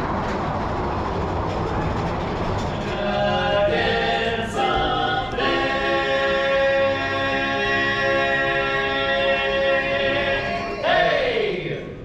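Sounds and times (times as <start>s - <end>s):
choir singing long chords: 2.8s - 11.8s.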